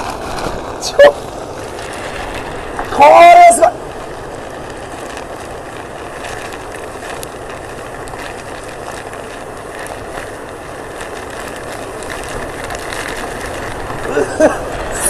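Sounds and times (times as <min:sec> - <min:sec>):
strong wind on microphone: 0:00.0 - 0:15.0
small clicks and rattles: 0:03.8 - 0:15.0.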